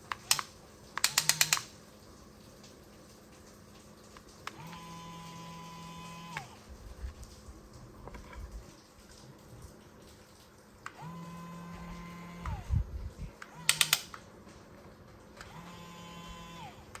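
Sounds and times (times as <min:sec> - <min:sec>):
sharp clicks: 0:00.1 - 0:01.7, 0:13.4 - 0:14.2
small electric motor whirring: 0:04.5 - 0:06.6, 0:11.0 - 0:12.8, 0:15.4 - 0:17.0.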